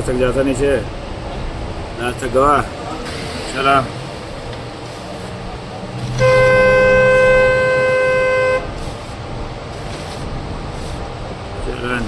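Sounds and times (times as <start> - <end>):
vehicle horn steady note: 6.0 - 9.1.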